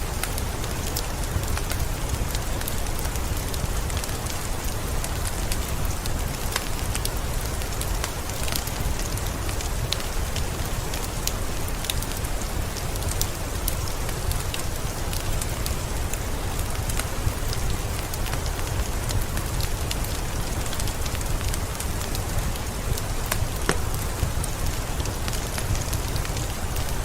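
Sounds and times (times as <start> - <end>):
heavy rain in forest: 0.0 - 27.0.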